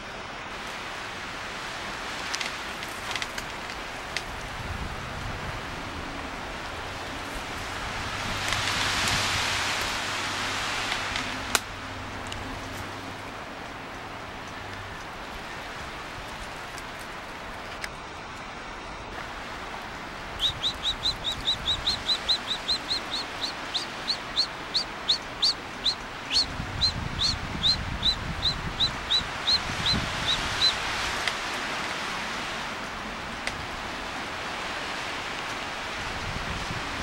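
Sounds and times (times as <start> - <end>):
bird calling high upslurred notes: 20.4 - 30.8.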